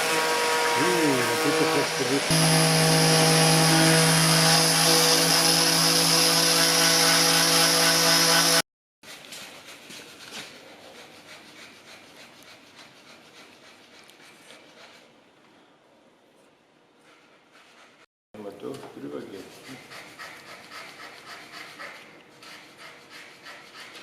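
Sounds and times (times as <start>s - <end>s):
electric power tool running: 0.0s - 8.6s
faint workshop noise: 0.0s - 24.0s.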